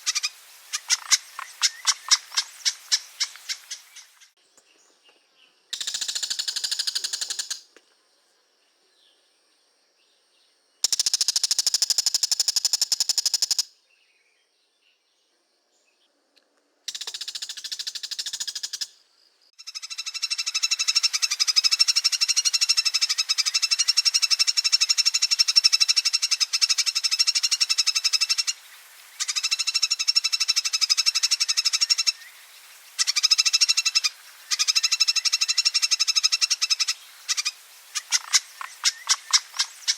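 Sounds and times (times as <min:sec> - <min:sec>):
bird chattering rattle: 0:00.0 - 0:04.3, 0:05.8 - 0:07.6, 0:10.8 - 0:13.7, 0:16.9 - 0:18.9, 0:29.2 - 0:32.3, 0:33.0 - 0:39.9.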